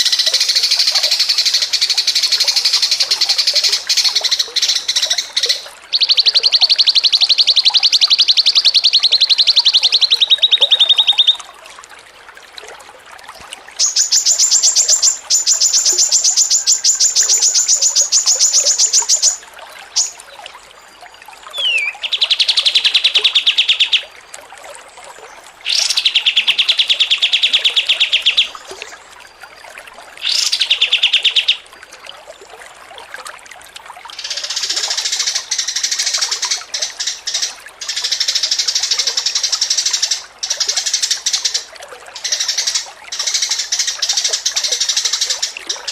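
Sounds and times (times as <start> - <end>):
songbird trilling: 0.0 - 11.4, 13.8 - 20.2, 21.5 - 24.0, 25.7 - 28.9, 30.2 - 31.6.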